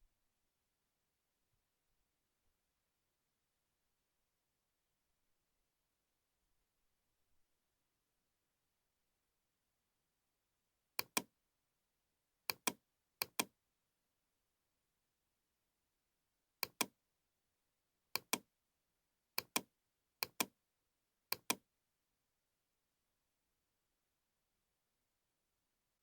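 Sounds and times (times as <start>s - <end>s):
mouse button double-clicks: 12.5s - 13.5s, 21.3s - 21.6s.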